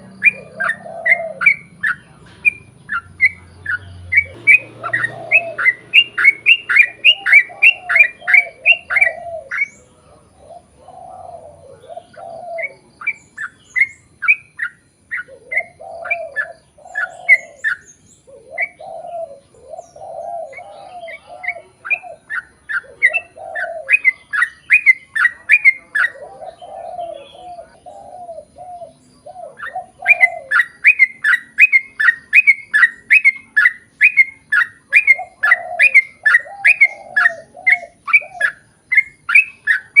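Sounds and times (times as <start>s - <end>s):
bird singing rapid falling notes: 0.0s - 40.0s
lower bird warbling: 0.0s - 40.0s.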